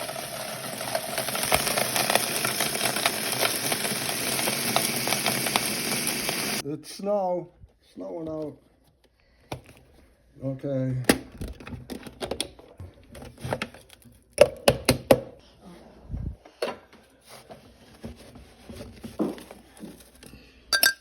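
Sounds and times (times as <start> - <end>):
kitchen items clicking and knocking: 20.8 - 21.0.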